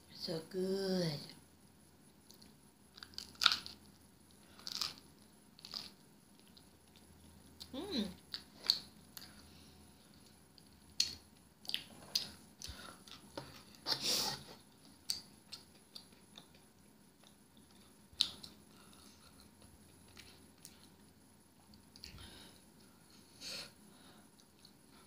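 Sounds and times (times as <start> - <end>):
person chewing crispy pizza: 2.2 - 13.9, 14.9 - 22.9.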